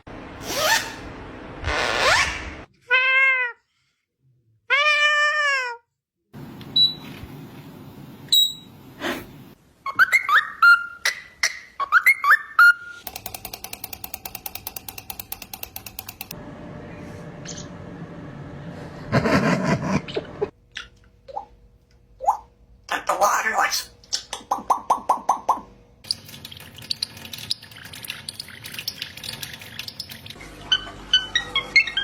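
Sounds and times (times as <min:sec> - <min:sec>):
parrot whistled notes: 0:09.9 - 0:11.2.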